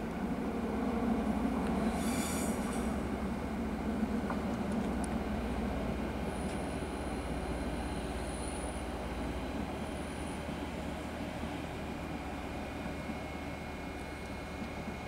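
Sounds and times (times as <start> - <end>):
diesel railcar running: 0.0 - 15.0
faint high wheel squeal: 1.8 - 3.0.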